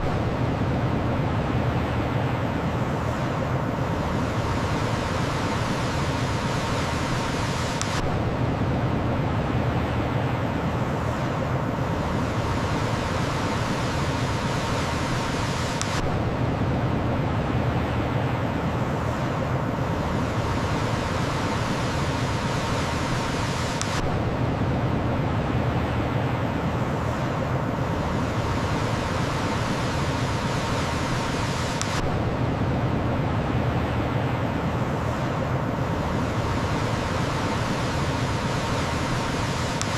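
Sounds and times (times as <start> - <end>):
faint click: 7.7 - 8.1, 15.8 - 16.1, 23.8 - 24.1, 31.8 - 32.1.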